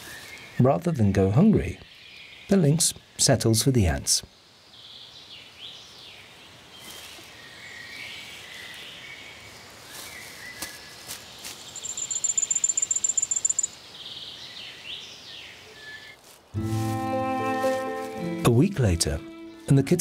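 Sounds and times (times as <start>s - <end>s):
birds calling: 5.1s - 18.4s
high rapid bird trill: 11.7s - 13.8s.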